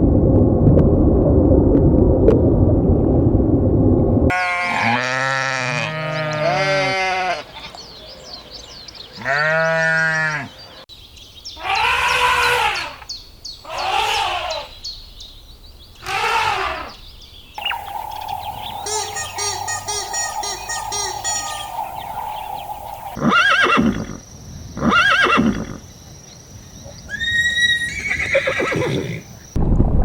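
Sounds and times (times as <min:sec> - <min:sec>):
sheep or goats bleating: 0:04.3 - 0:07.5, 0:09.2 - 0:10.5
faint high chirps: 0:17.6 - 0:23.2.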